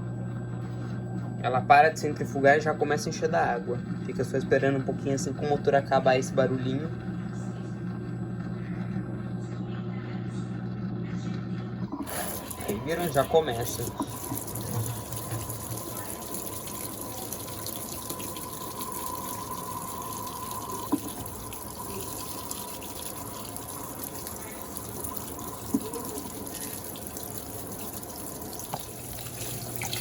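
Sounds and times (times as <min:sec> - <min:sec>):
faint steady whine: 0:11.8 - 0:30.0
water rushing into washing machine: 0:11.9 - 0:30.0.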